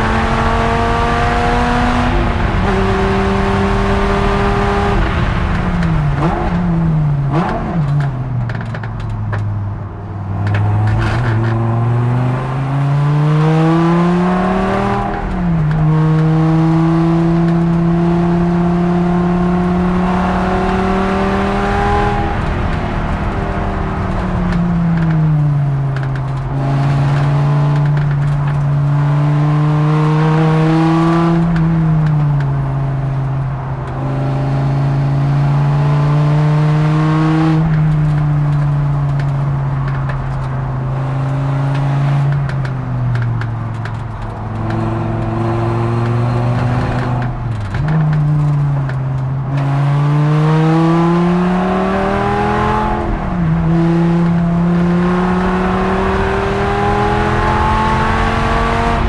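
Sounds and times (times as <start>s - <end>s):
race car engine accelerating: 0.0s - 8.2s, 10.5s - 33.1s, 43.7s - 59.0s.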